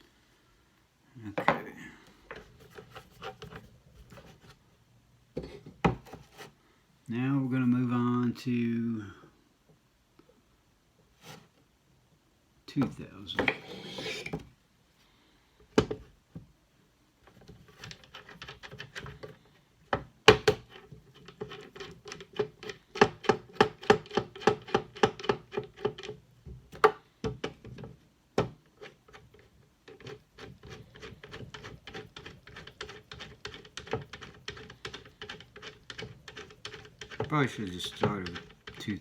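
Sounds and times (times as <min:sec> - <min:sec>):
knife scraping on whetstone: 0:13.4 - 0:14.4, 0:28.8 - 0:38.9.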